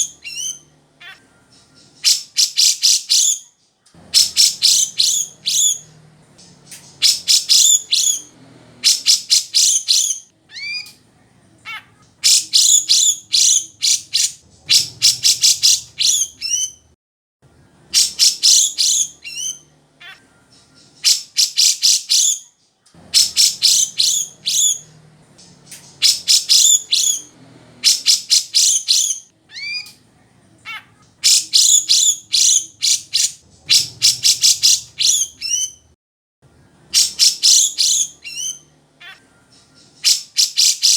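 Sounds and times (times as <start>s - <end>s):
bird chattering song: 0.0s - 16.9s, 17.5s - 35.9s, 36.5s - 40.9s
sliding bird whistles: 4.1s - 6.0s.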